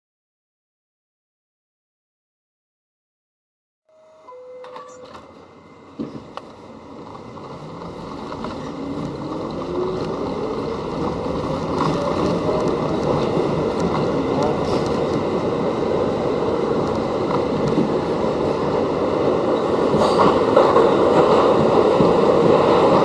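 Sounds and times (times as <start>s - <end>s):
two-note falling chime: 3.9s - 5.3s
subway train pulling away: 3.9s - 23.0s.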